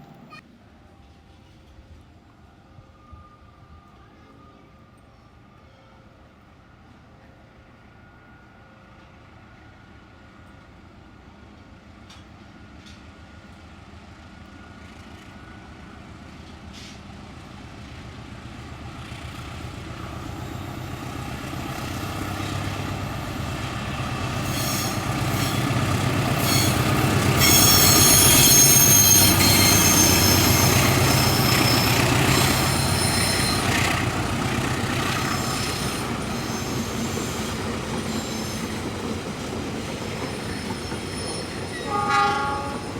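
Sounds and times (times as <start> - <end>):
train rumbling past: 0.0 - 42.9
high wheel squeal: 20.4 - 42.9.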